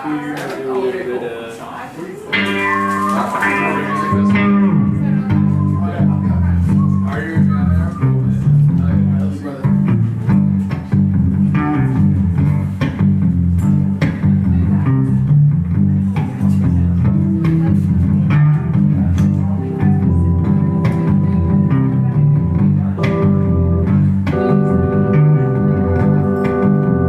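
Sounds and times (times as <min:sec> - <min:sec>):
guitar: 0:02.3 - 0:27.0
drums: 0:02.4 - 0:27.0
electric bass line: 0:02.4 - 0:27.0
sustained organ chords: 0:02.6 - 0:08.3, 0:20.0 - 0:27.0.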